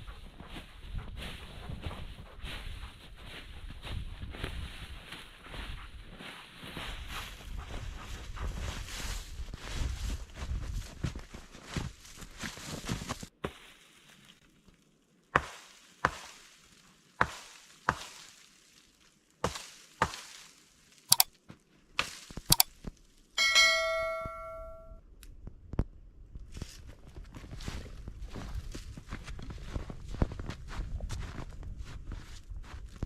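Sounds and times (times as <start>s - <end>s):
ringing metallic clang: 23.4s - 25.0s.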